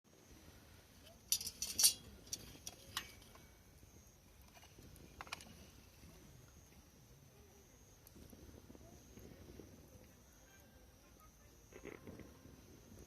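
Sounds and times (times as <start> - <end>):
campfire crackling and popping: 7.9 - 10.4.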